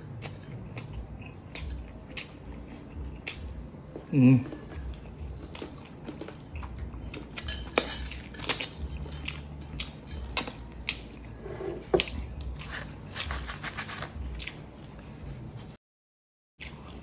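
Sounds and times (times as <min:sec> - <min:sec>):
chewing with wet mouth clicks: 0:00.0 - 0:11.3.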